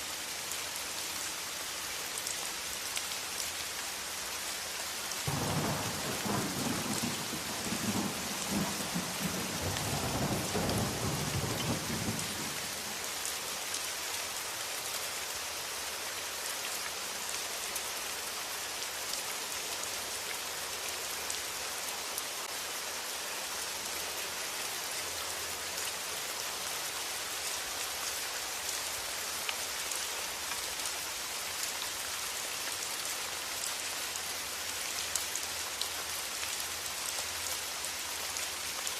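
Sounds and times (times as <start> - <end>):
heavy rain: 0.0 - 38.9
thunder rumbling: 5.3 - 12.8.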